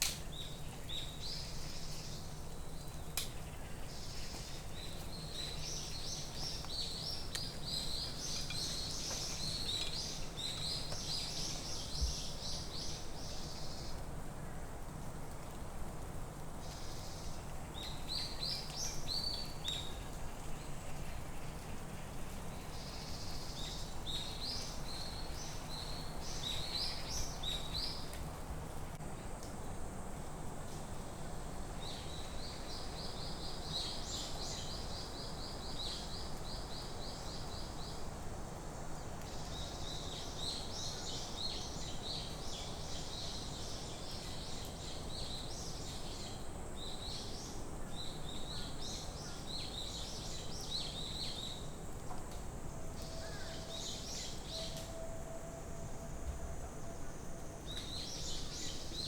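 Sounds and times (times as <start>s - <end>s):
low background noise: 0.0s - 59.0s
songbirds singing: 0.1s - 14.1s, 16.6s - 28.2s, 39.0s - 52.3s, 53.0s - 55.0s.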